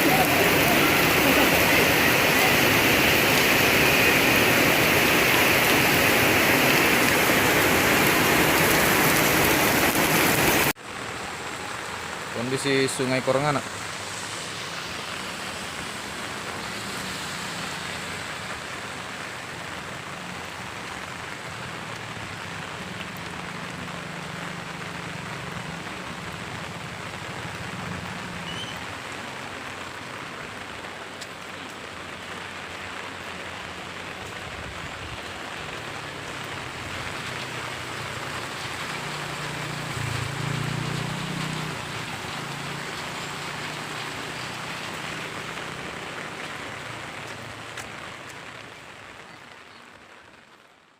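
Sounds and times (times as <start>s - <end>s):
heavy rain and rushing floodwater: 0.0s - 50.9s.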